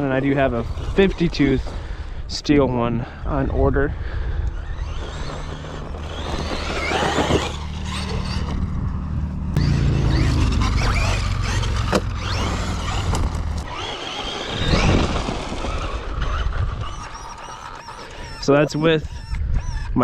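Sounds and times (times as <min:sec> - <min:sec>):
low rumble: 0:03.0 - 0:13.8
electric motor whining: 0:03.6 - 0:20.0.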